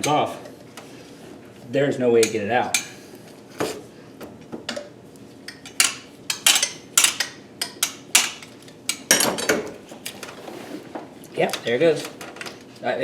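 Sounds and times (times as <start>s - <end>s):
hand tools clanking on metal: 0.0s - 0.3s, 5.5s - 10.4s.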